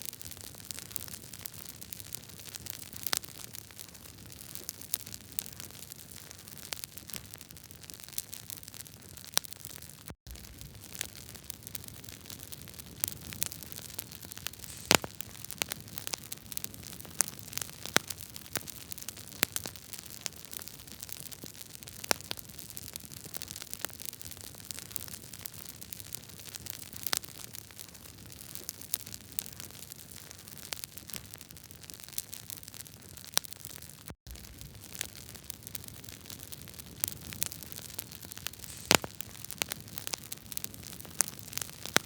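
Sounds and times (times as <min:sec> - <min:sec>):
wood fire crackling: 0:00.0 - 0:42.0
fire hiss: 0:10.4 - 0:16.6, 0:34.4 - 0:42.0.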